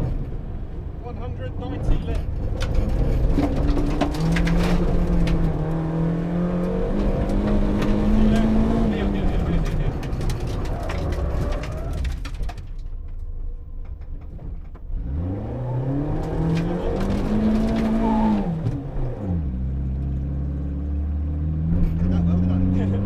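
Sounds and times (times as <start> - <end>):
rally car engine revving: 1.2 - 12.4, 14.8 - 23.0
stones rattling against car: 2.2 - 5.5, 9.2 - 13.3.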